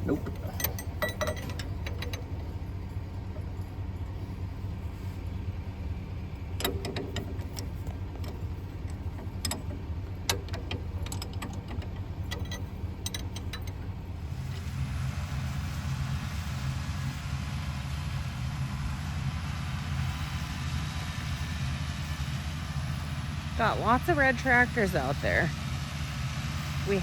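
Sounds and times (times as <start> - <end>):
metallic clinks of tools: 0.0 - 2.7
diesel tractor engine idling: 0.0 - 27.0.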